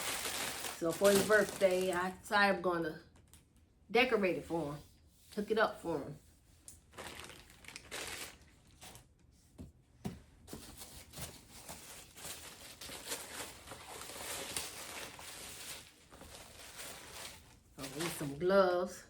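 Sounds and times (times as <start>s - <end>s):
plastic packaging tearing and crinkling: 0.0s - 2.2s, 6.8s - 9.1s, 11.6s - 18.3s.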